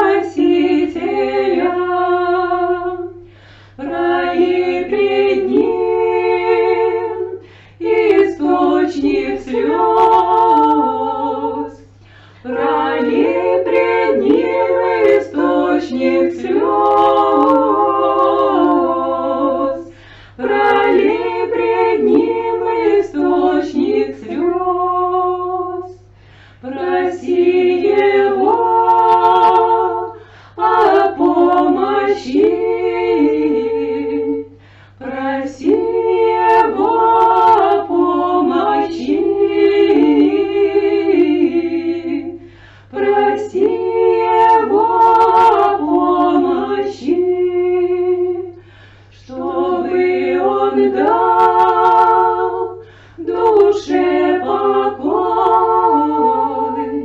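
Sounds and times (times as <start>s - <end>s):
women singing a cappella: 0.0s - 57.0s.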